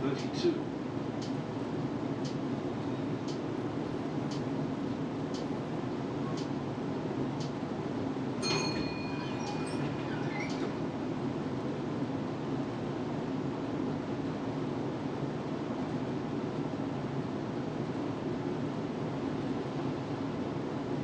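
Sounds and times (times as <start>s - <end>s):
tram rumbling: 0.0s - 21.0s
light ticks: 2.2s - 2.4s, 3.2s - 3.4s, 4.3s - 4.5s, 5.3s - 5.5s, 7.4s - 7.6s
metallic ring: 8.4s - 10.3s.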